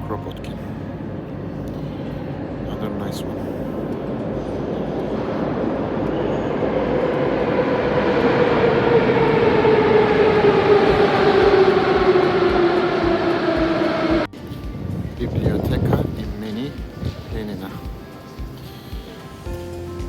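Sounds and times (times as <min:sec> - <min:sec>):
metro train rumbling in tunnel: 0:00.0 - 0:19.6
train whine falling in pitch: 0:05.4 - 0:14.7.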